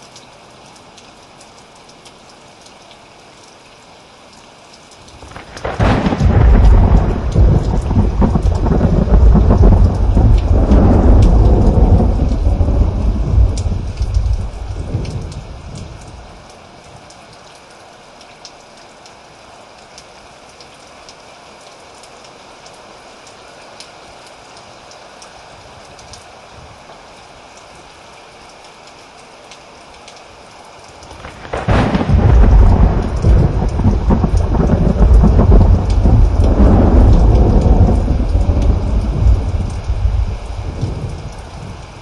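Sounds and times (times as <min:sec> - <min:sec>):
steady rain: 0:00.0 - 0:42.0
thunder rumbling: 0:05.2 - 0:16.3, 0:31.2 - 0:42.0.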